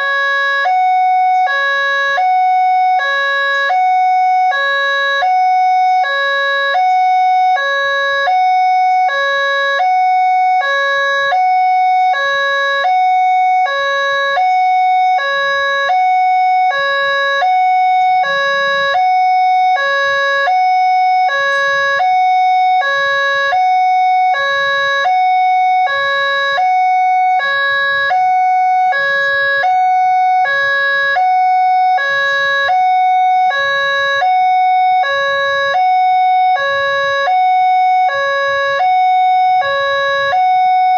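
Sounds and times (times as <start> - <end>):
level crossing two-tone alarm: 0.0 - 40.9
steady high tone: 21.2 - 23.5.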